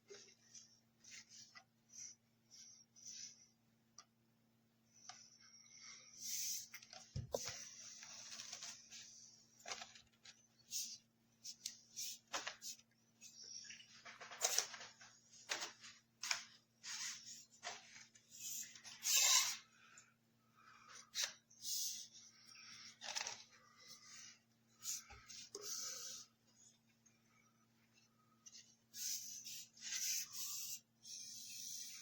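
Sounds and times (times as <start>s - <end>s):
objects rustling and clicking: 6.7s - 10.4s, 13.6s - 18.2s.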